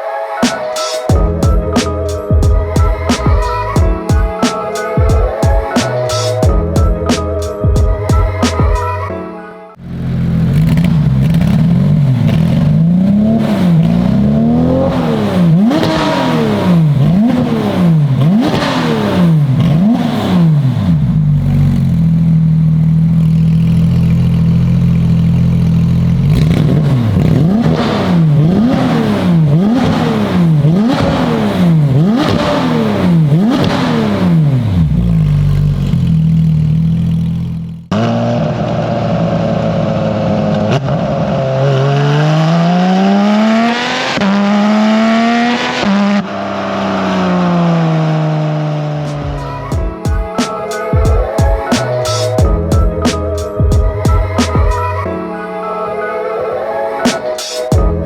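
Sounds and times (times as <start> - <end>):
car engine revving: 9.8 - 49.7.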